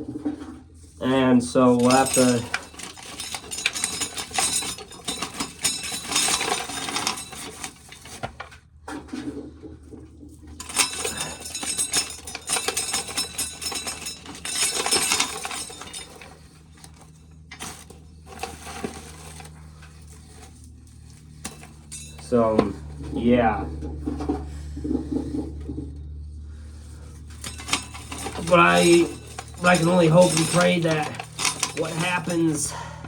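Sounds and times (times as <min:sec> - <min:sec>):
corn kernels rattling into container: 0:27.4 - 0:32.7.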